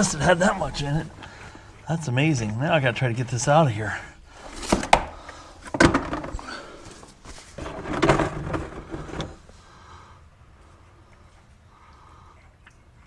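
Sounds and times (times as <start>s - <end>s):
oil drain pan clunking: 0.0s - 9.6s.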